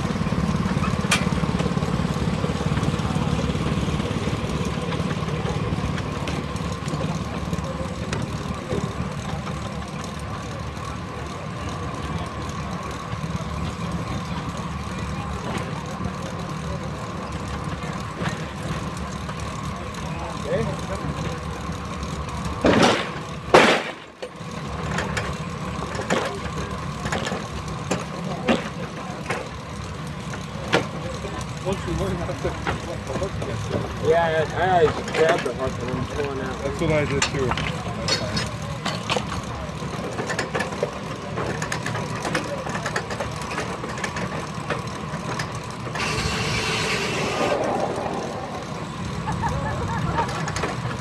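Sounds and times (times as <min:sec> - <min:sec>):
steam-powered sawmill running: 0:00.0 - 0:51.0
steady whine: 0:42.4 - 0:51.0
loud burst of noise: 0:45.9 - 0:51.0.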